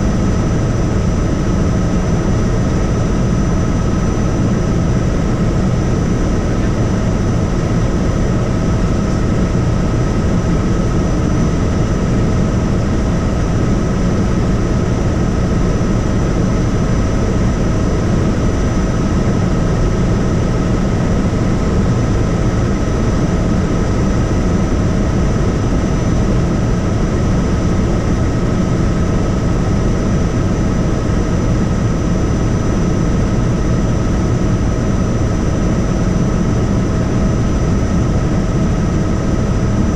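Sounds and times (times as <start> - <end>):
helicopter rotor and engine rumble: 0.0 - 39.9.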